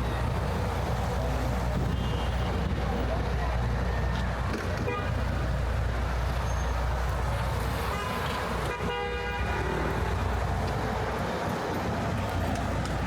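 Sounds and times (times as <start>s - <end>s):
low rumble of city traffic: 0.0s - 13.0s
car horn honks: 4.8s - 5.1s, 7.9s - 9.6s.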